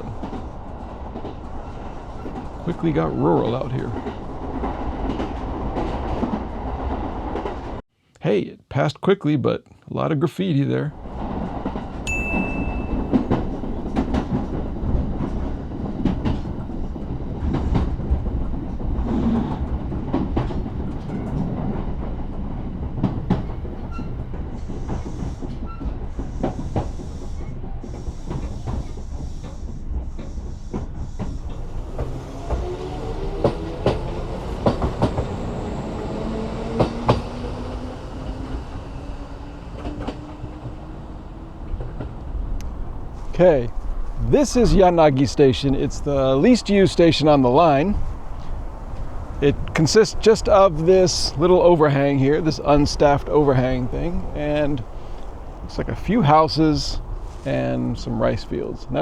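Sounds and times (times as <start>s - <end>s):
train rumbling on track: 0.0s - 7.8s, 10.8s - 59.0s
wheels clicking over rail joints: 0.0s - 7.8s, 11.0s - 59.0s
rising hum: 31.4s - 44.3s.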